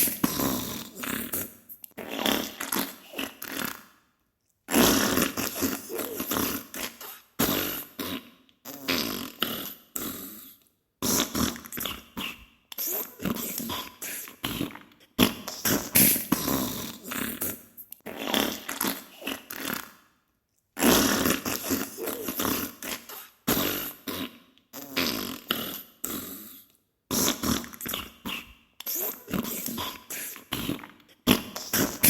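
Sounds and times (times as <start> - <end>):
fart bursts: 0.0 - 3.8, 4.7 - 9.6, 11.0 - 12.3, 14.5 - 19.9, 20.8 - 25.8, 27.1 - 32.0.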